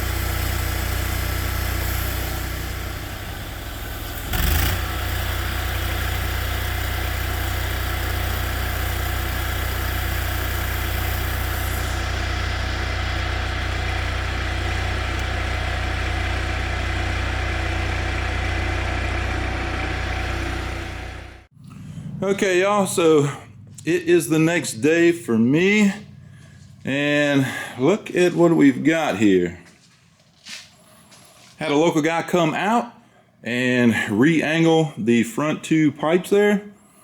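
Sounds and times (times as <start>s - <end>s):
engine idling: 0.0s - 25.2s, 25.8s - 27.2s.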